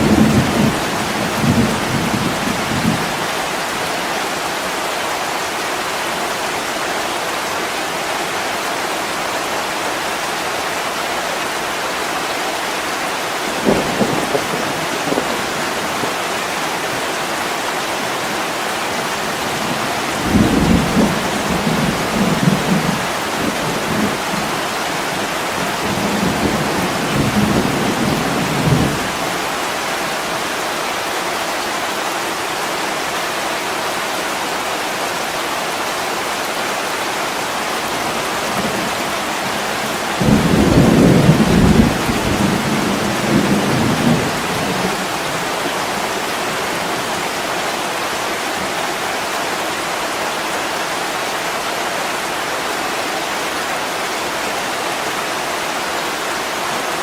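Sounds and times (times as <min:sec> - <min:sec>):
heavy rain on window glass: 0:00.0 - 0:07.3, 0:11.4 - 0:31.8, 0:34.8 - 0:57.0
distant thunder rumbling: 0:19.0 - 0:24.6, 0:38.4 - 0:46.8.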